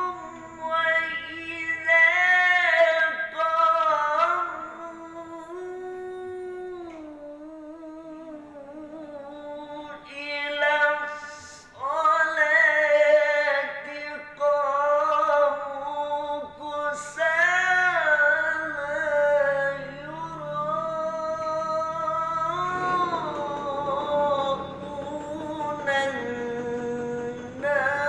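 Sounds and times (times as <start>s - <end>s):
melodic recitation by one voice: 0.0s - 28.0s.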